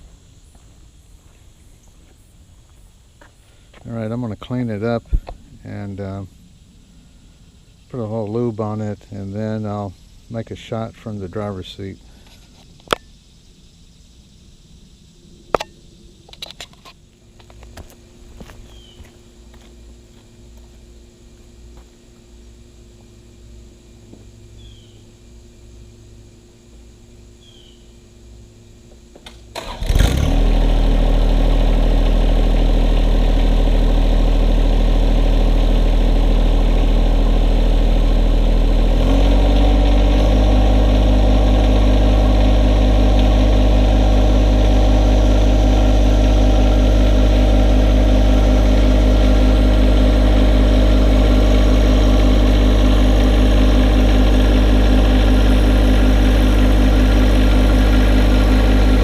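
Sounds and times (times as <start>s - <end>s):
diesel tractor engine running: 28.9s - 59.0s.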